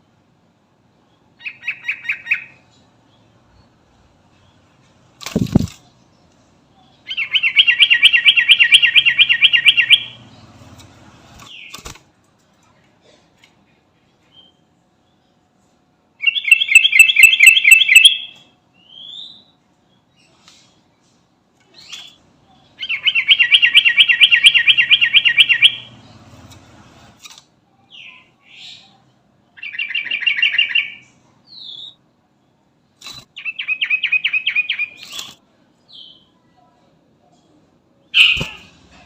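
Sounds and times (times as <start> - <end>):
bird call notes: 7.1 - 10.3, 16.2 - 18.4, 22.8 - 26.0.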